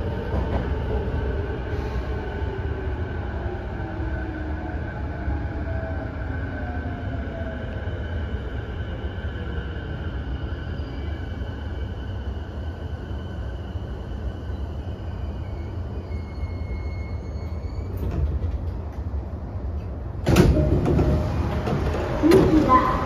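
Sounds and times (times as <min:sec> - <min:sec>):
train doors sliding open: 0:16.2 - 0:23.0
train running rumble: 0:17.9 - 0:23.0.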